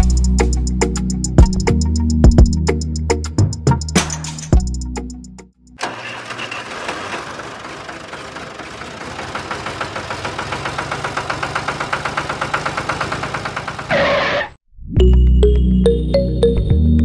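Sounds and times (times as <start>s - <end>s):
small tractor engine chugging: 5.8s - 14.3s.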